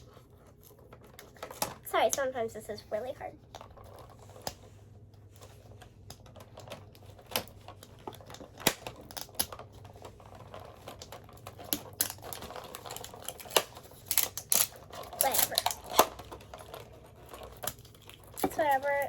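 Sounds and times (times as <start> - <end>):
packaging clicks and snaps: 5.9 - 10.2, 10.8 - 19.0.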